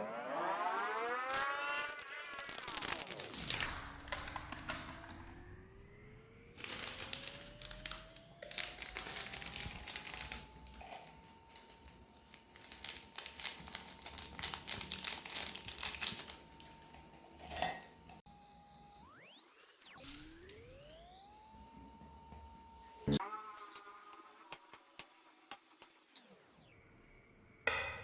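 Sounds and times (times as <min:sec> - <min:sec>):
plastic packaging crinkling: 0:01.2 - 0:03.6, 0:06.6 - 0:18.1.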